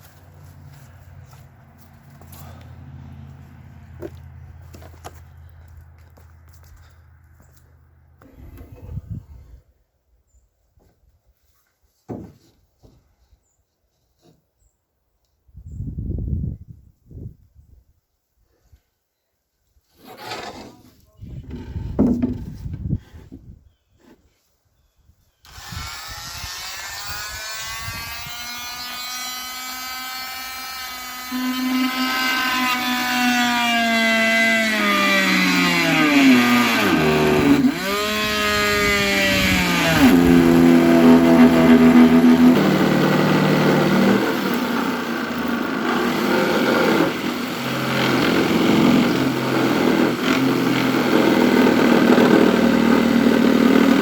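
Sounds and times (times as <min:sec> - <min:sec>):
power tool motor running: 0:25.4 - 0:54.0.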